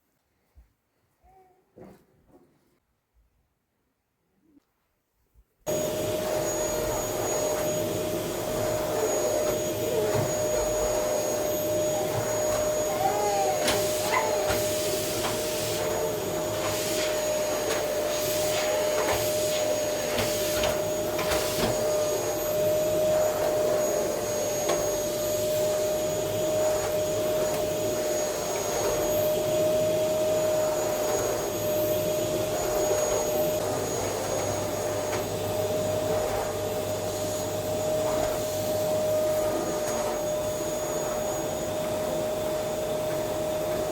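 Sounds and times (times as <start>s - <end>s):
vacuum cleaner running: 5.7s - 43.9s.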